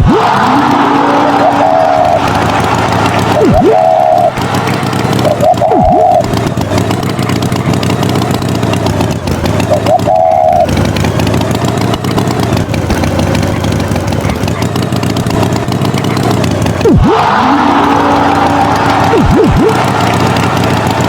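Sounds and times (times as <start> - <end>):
swooping pitch glide: 0.0 - 11.1, 16.8 - 21.0
tractor engine running: 0.0 - 21.0.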